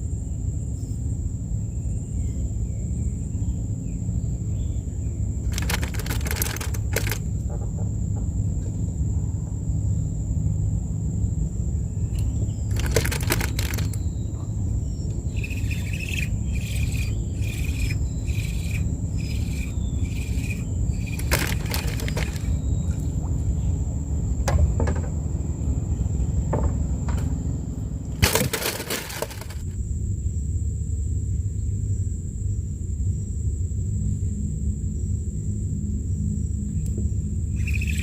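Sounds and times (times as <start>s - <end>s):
steady low rumble: 0.0s - 28.2s, 29.5s - 38.0s
bird chirping: 11.9s - 23.8s, 37.5s - 38.0s.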